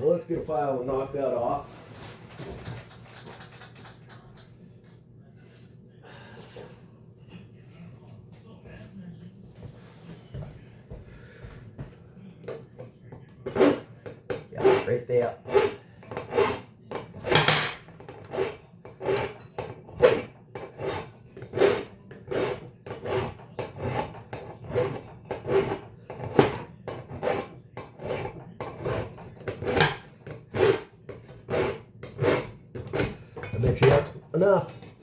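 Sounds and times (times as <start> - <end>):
file rasping on metal: 13.4 - 33.4.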